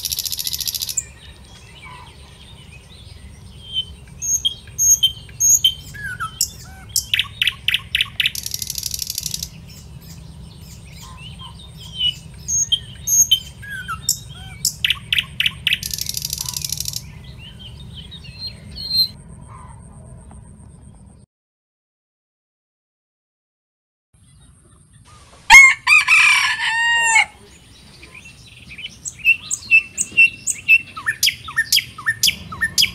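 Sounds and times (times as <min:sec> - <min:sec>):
small birds chirping: 0:00.0 - 0:21.2, 0:27.3 - 0:32.9
low rumble: 0:01.0 - 0:21.2.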